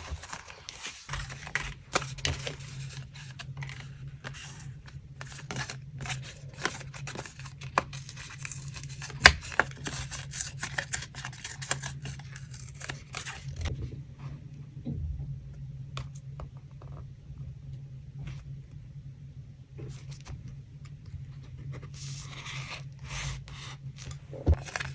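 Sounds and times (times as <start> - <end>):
steady low hum: 13.1 - 24.9.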